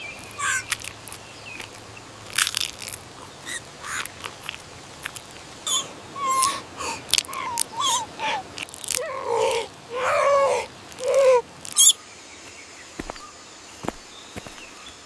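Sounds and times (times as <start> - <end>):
monkey chewing sticky candy: 0.2 - 5.4
high squeaks: 11.0 - 12.0.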